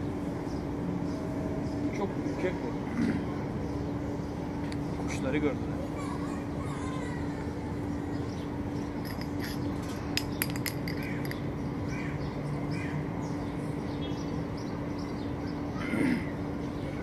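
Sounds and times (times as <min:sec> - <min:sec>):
low outdoor hum: 0:00.0 - 0:17.0.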